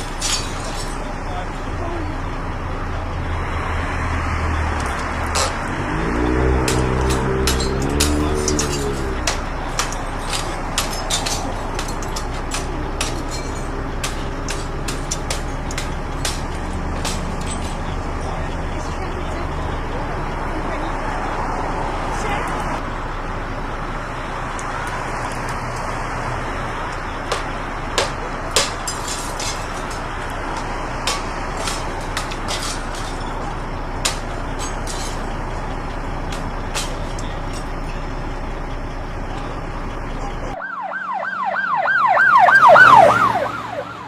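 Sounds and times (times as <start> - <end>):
traffic rumble: 0.0 - 44.0
emergency siren yelping: 40.6 - 44.0.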